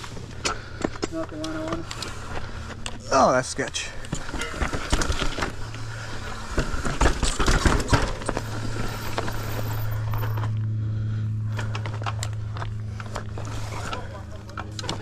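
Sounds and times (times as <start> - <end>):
steady low hum: 0.0 - 15.0
mountain bike rattling on rocks: 4.1 - 10.4.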